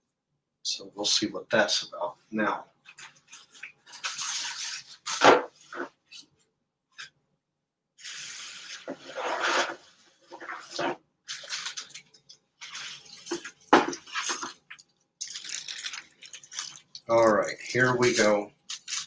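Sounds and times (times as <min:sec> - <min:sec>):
paper rustling and crinkling: 0:02.9 - 0:05.9, 0:08.0 - 0:19.0.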